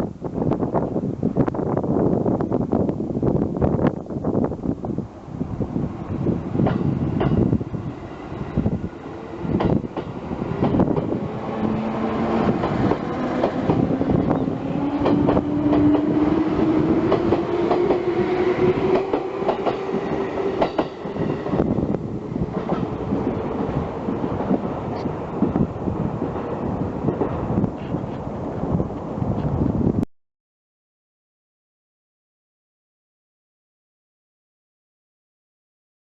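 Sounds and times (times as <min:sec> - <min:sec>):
train wheels clattering over joints: 0:12.2 - 0:21.2.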